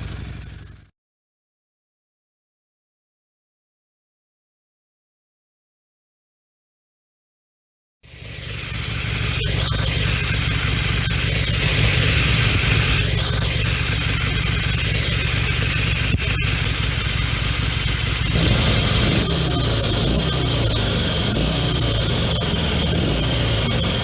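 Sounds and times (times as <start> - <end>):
motorcycle exhaust rumble: 0.0 - 0.9, 8.2 - 24.0.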